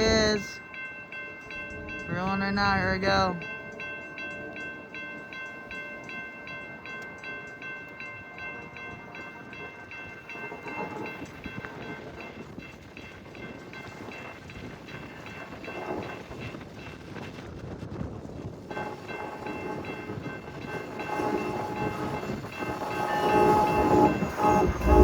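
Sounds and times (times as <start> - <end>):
train wheel clatter: 6.9 - 25.0
freight train rumbling past: 8.4 - 25.0
bell dinging: 18.7 - 25.0.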